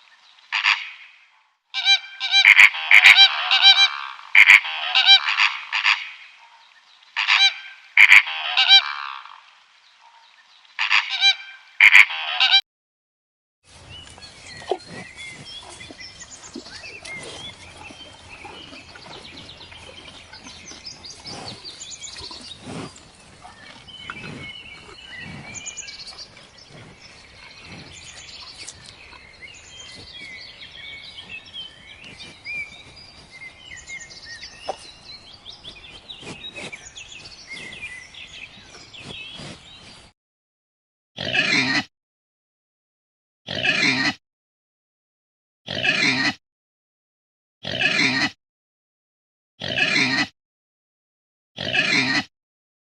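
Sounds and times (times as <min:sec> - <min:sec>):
small birds chirping: 0:13.7 - 0:40.1.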